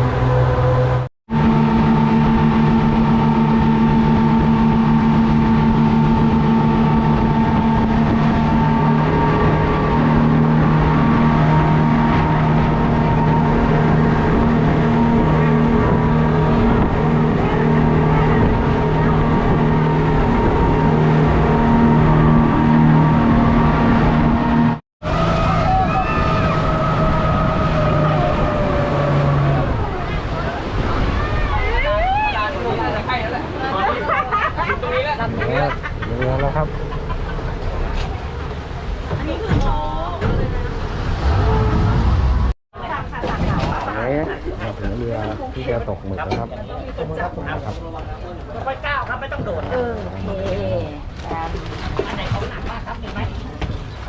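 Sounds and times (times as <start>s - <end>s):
engine humming: 0.0s - 42.6s.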